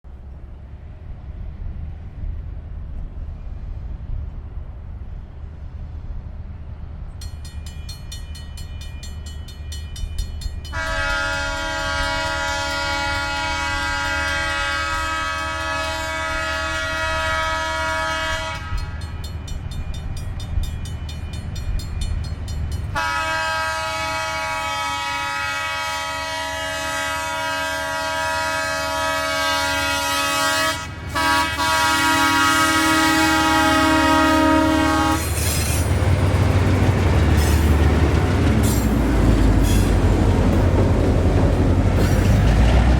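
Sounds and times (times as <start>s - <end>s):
low rumble of train: 0.0s - 42.9s
crossing warning bell ringing: 7.1s - 25.4s
locomotive air horn blasts: 10.7s - 19.2s, 22.9s - 35.4s.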